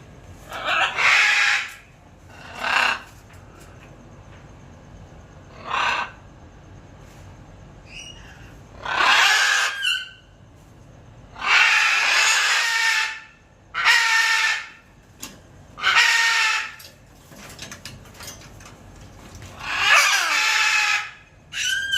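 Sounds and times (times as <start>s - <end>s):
macaws squawking: 0.5s - 3.1s, 8.8s - 10.2s, 11.4s - 13.2s, 13.8s - 14.8s, 15.8s - 16.9s, 19.5s - 21.9s.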